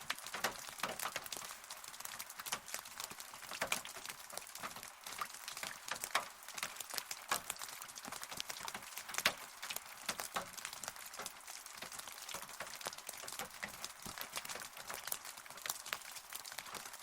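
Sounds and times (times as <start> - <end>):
rain hiss: 0.0 - 17.0
raindrops tapping on hard surface: 0.0 - 17.0.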